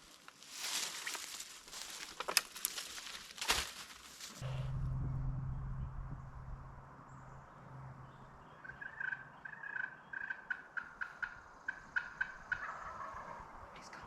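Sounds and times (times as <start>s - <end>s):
turkey calls: 8.5s - 13.6s.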